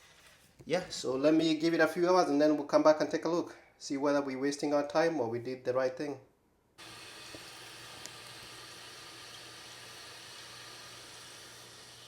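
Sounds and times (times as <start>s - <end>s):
toilet tank refilling hiss: 6.8s - 12.0s.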